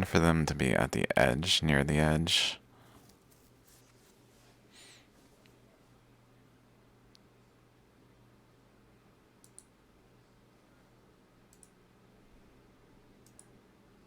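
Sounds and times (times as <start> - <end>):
low steady hum: 0.0 - 14.0
computer mouse clicks: 9.4 - 9.7, 11.5 - 11.8, 13.2 - 13.5.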